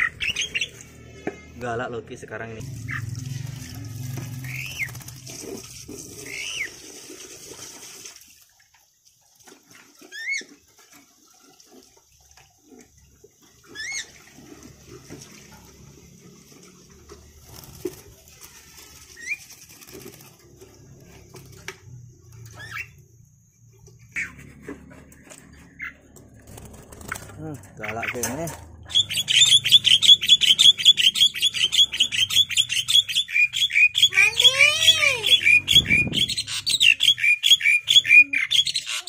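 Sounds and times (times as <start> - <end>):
bird giving sharp calls: 4.4 - 4.9, 27.8 - 39.0.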